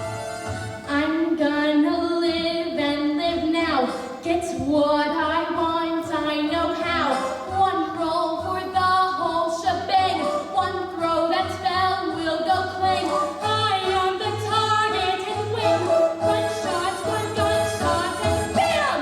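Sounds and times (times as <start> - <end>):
backing vocal harmonies: 5.4 - 19.0
lead voice singing: 5.9 - 19.0.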